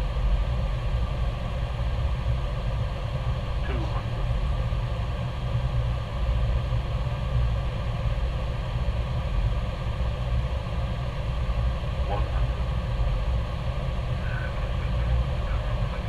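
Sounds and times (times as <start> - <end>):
airliner cockpit rumble and hiss: 0.0 - 16.0.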